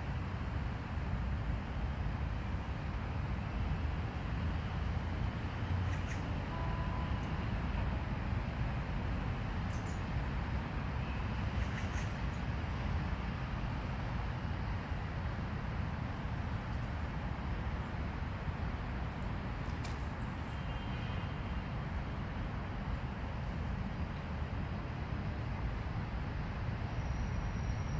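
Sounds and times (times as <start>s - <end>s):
faint brief clicks: 19.7s - 20.2s.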